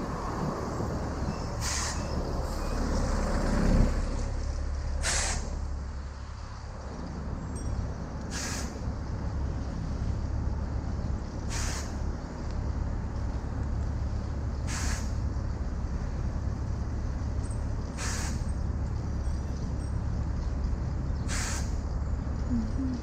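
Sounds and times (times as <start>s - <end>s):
city street traffic: 0.0s - 23.0s
wind rumble on microphone: 0.0s - 23.0s
short sharp hiss: 5.0s - 5.5s, 11.5s - 12.0s, 14.7s - 15.1s, 18.0s - 18.4s, 21.3s - 21.7s.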